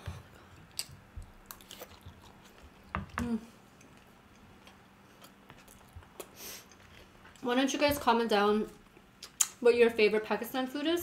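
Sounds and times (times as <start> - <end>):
people chewing with mouth clicks: 0.0 - 7.5, 8.8 - 9.6.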